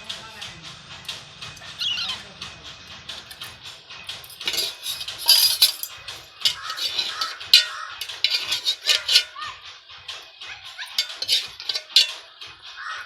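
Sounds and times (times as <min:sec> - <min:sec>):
spoon scraping metal dish: 0:04.3 - 0:09.4, 0:10.9 - 0:12.2.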